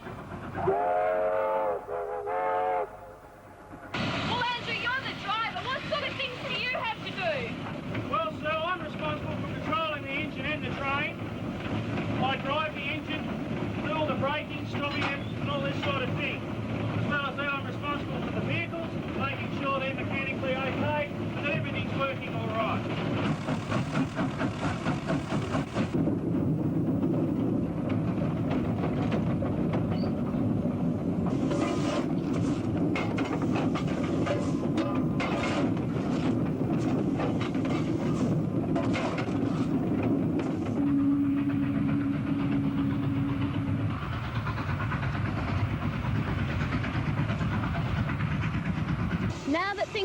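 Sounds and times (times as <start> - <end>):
steam locomotive exhaust chuffs: 0.0 - 50.0
train running rumble: 0.0 - 50.0
low train whistle: 0.6 - 3.6, 40.8 - 44.0.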